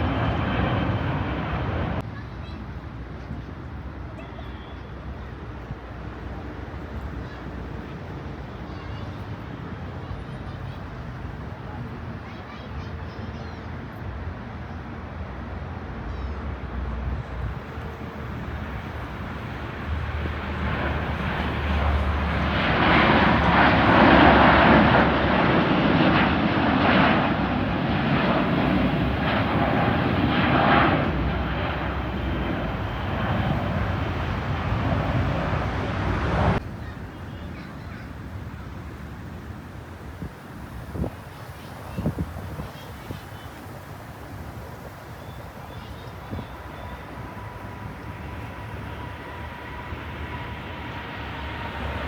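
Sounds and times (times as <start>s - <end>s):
jet engines roaring: 0.0s - 2.0s, 17.2s - 41.7s, 42.4s - 52.0s.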